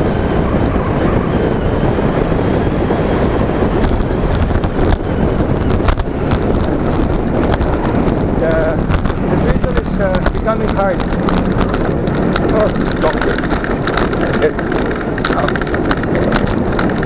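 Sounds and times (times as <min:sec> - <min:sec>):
wind buffeting microphone: 0:00.0 - 0:17.0
raindrops ticking on helmet: 0:03.8 - 0:17.0.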